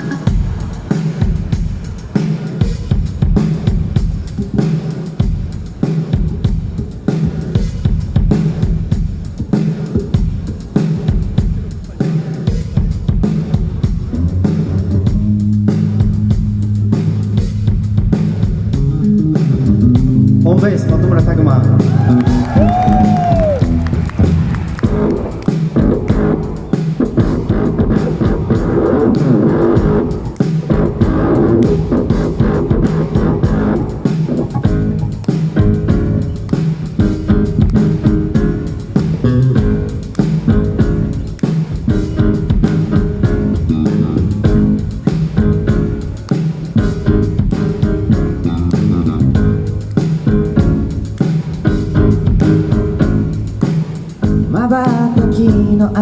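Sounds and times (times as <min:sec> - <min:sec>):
steady drum beat: 0:00.0 - 0:56.0
guitars and bass: 0:13.8 - 0:56.0.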